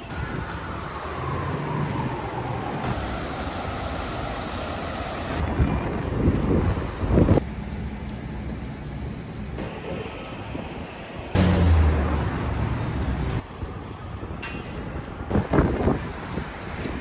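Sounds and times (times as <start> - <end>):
vehicle passing: 11.4 - 13.4.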